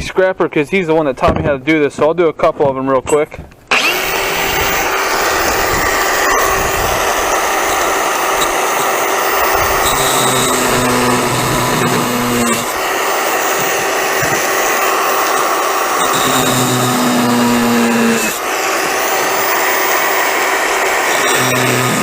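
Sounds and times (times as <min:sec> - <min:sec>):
low hum: 0:03.7 - 0:14.6
power tool rushing noise: 0:03.7 - 0:22.0.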